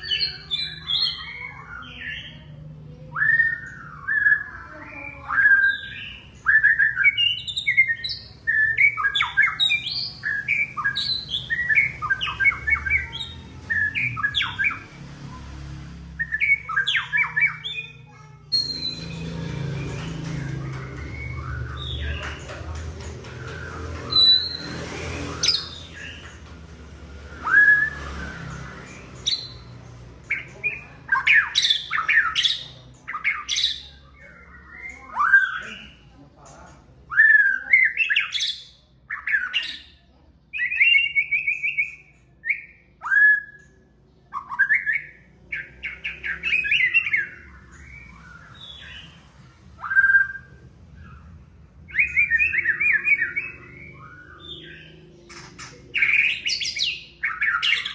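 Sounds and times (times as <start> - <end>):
songbird whistles and trills: 3.1 - 14.9, 16.2 - 36.0, 40.5 - 57.9.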